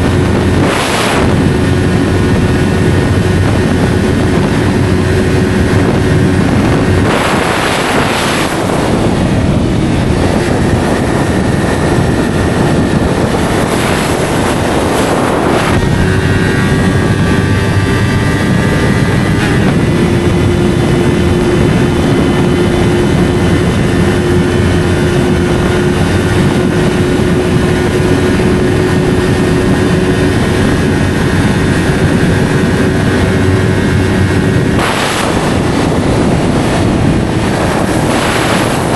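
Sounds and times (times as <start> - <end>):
motorcycle engine running: 0.0 - 38.9
rushing wind: 0.0 - 38.9.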